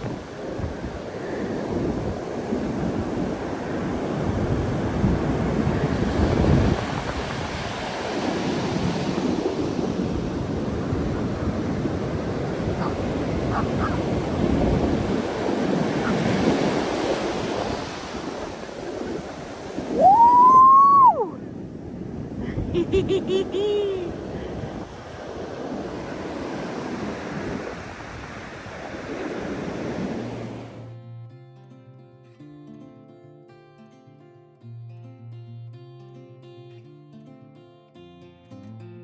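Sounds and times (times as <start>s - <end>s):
wind buffeting microphone: 0.0s - 30.8s
surf washing up beach: 0.0s - 30.9s
loud high call: 19.9s - 21.4s.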